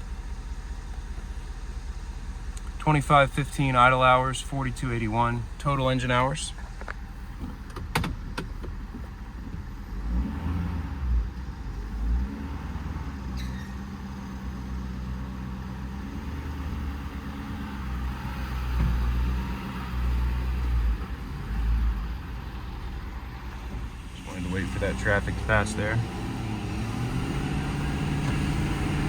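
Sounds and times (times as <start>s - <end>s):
traffic passing by: 9.3s - 29.0s.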